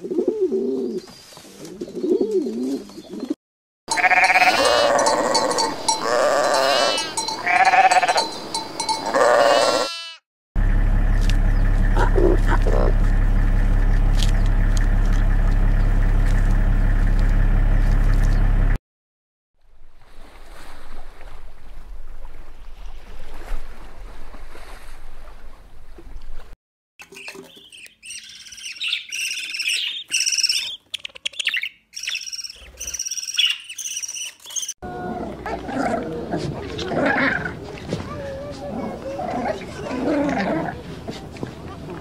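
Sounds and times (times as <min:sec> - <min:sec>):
low hum with overtones: 0:10.6 - 0:18.8
parrot chicks chirping and squawking: 0:27.0 - 0:35.7.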